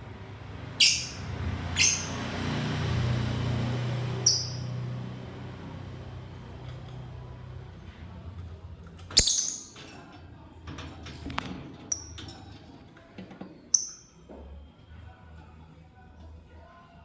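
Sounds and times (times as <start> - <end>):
birds chirping: 0.2 - 5.0
shrill bird burst: 0.8 - 2.2.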